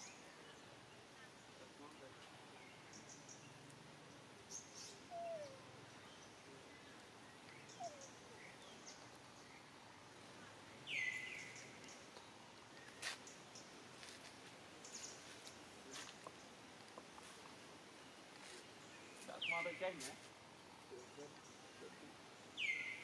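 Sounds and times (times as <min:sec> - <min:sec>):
faint bird chirps: 0:00.0 - 0:13.7, 0:20.9 - 0:23.0.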